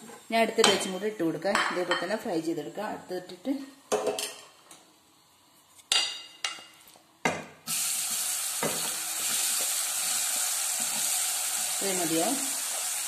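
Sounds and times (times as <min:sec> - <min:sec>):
food deep-frying in oil: 0:07.7 - 0:13.0.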